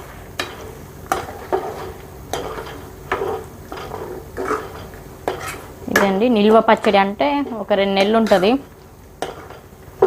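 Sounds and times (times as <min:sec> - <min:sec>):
food sizzling in oil: 0:00.0 - 0:10.0
spoon scraping a pan: 0:00.4 - 0:10.0.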